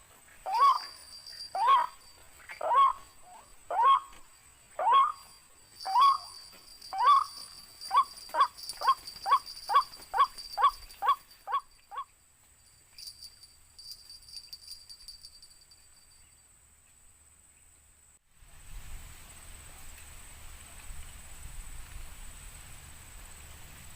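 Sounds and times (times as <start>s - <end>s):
waterhen calling: 0.4s - 4.2s, 4.8s - 12.1s.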